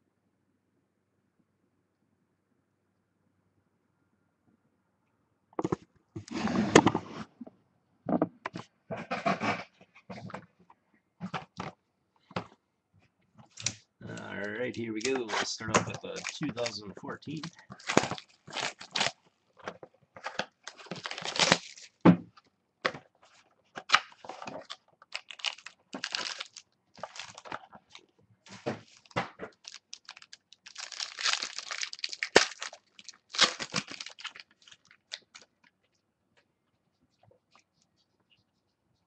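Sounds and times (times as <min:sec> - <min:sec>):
card pack wrapping tearing: 0:14.4 - 0:19.2, 0:20.2 - 0:22.0, 0:23.9 - 0:28.0, 0:28.8 - 0:35.5
cards shuffling: 0:14.4 - 0:19.2.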